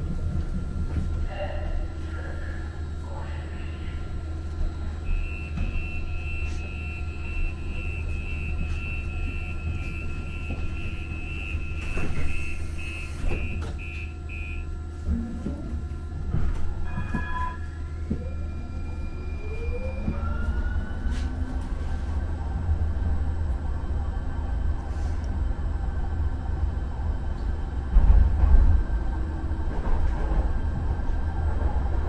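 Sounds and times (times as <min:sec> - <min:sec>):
high warning beeps: 0:05.0 - 0:14.7.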